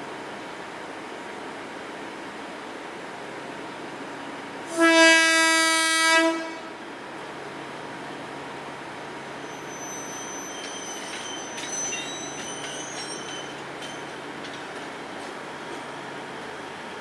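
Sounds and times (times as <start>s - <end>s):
train rumbling past: 4.1s - 17.0s
train wheels squealing: 9.3s - 16.0s.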